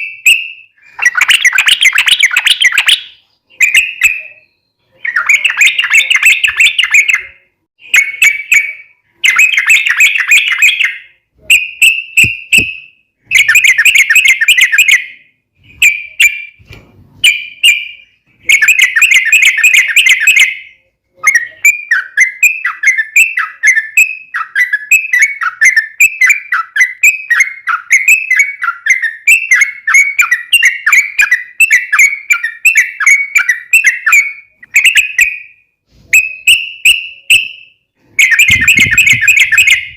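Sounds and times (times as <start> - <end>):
bird singing chattering phrases: 0.0 - 15.2, 38.2 - 39.9.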